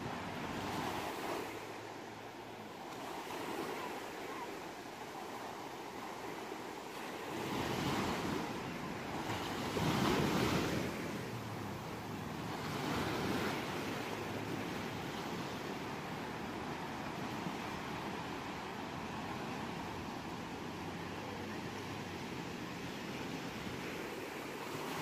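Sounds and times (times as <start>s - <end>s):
ocean waves breaking on shore: 0.0s - 25.0s.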